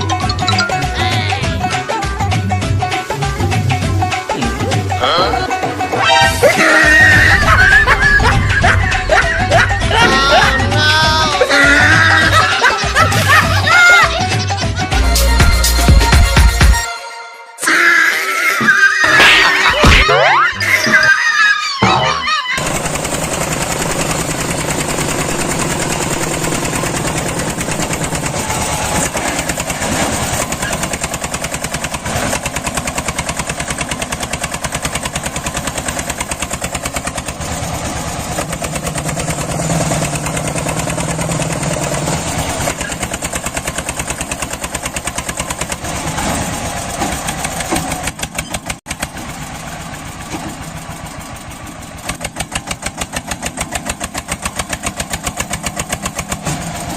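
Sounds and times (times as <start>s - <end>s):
tractor engine running: 0.0s - 16.8s, 22.6s - 56.9s.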